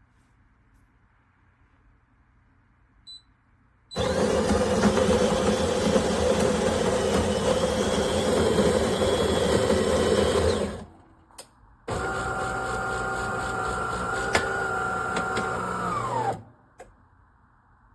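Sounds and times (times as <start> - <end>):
coffee grinder grinding beans: 4.0 - 10.9, 11.9 - 16.2.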